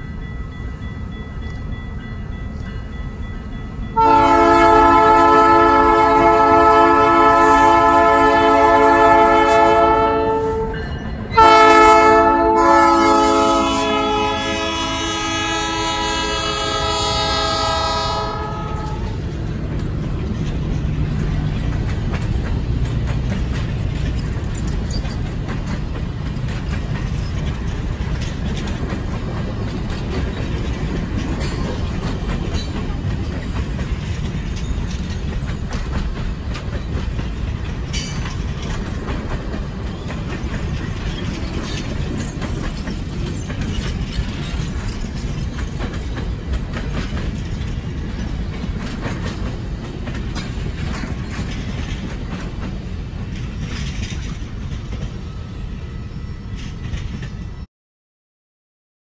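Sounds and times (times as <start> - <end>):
train wheels rumbling on rails: 0.0 - 57.7
wheels clicking over rail joints: 16.5 - 55.3.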